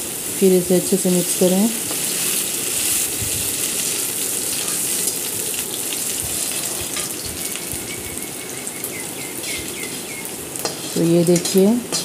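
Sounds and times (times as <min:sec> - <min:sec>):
onion sizzling in hot oil: 0:00.0 - 0:12.0
metal spatula scraping pan: 0:09.4 - 0:12.0.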